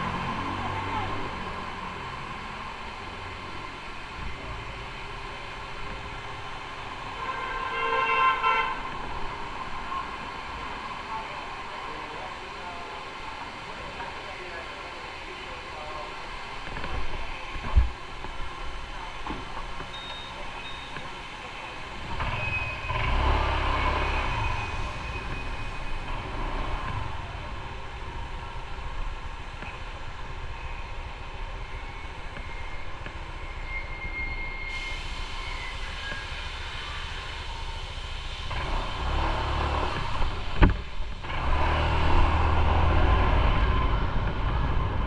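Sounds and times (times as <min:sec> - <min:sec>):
road noise: 0:00.0 - 0:45.0
traffic noise: 0:00.0 - 0:45.0
vehicle horn blast: 0:07.2 - 0:08.9.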